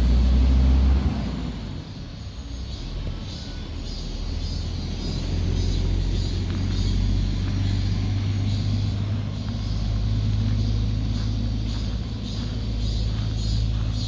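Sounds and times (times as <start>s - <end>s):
steady low rumble: 4.4s - 14.0s
footsteps on a path: 4.8s - 14.0s.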